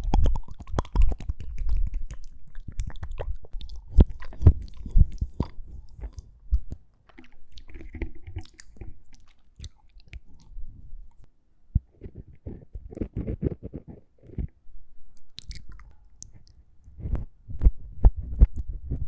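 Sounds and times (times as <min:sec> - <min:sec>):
wet mouth clicks and smacks: 0:00.0 - 0:11.3, 0:15.1 - 0:16.6.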